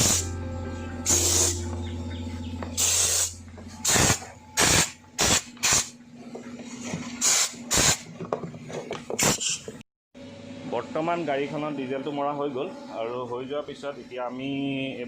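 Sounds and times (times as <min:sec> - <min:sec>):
spray gun hissing: 0:00.0 - 0:00.3, 0:01.0 - 0:01.6, 0:02.8 - 0:05.8
low steady hum: 0:00.0 - 0:07.2.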